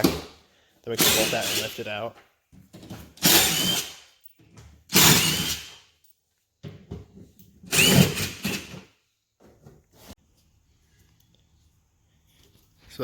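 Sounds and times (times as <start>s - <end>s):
power drill whirring: 1.0s - 1.8s, 3.2s - 4.1s, 4.9s - 5.8s, 7.7s - 8.8s.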